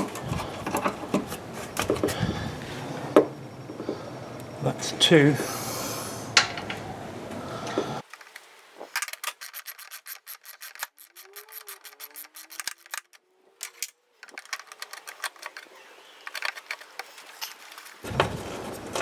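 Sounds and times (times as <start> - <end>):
hand tool metallic clicks: 9.0 - 18.0.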